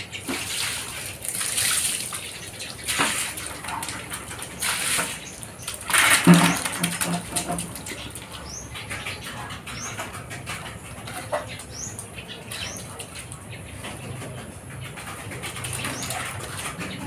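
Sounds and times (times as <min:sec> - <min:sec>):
water dripping on concrete: 0:00.3 - 0:09.9.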